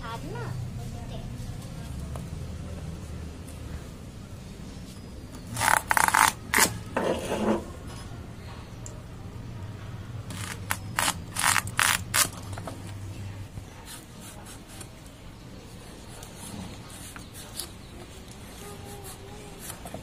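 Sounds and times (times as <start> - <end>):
blade cutting gourd: 5.5 - 6.8, 10.3 - 12.3
blade scraping rind: 5.5 - 7.7, 10.3 - 12.4.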